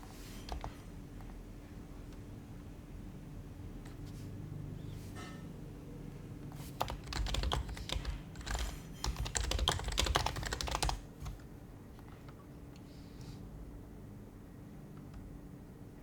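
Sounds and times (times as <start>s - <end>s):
quiet keyboard typing: 0.0s - 1.4s, 6.4s - 13.3s.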